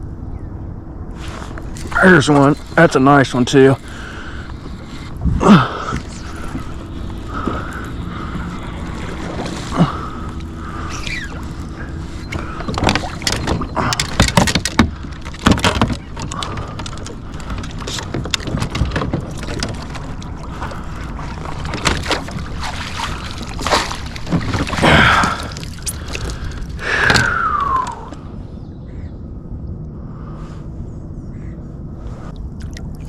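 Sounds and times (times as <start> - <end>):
water splashing: 1.2 - 28.2
knocks and clatter on a kayak: 6.0 - 28.0
whines falling in pitch: 27.0 - 28.3.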